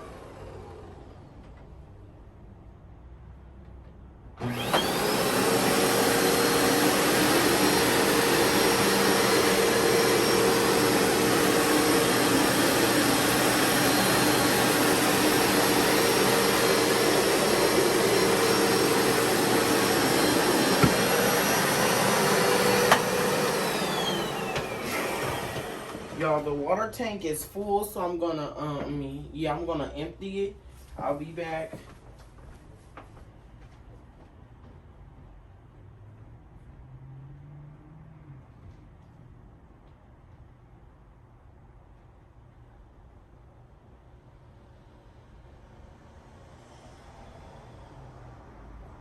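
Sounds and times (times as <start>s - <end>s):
carpet cleaner motor whining: 0.0s - 1.9s, 4.4s - 26.8s.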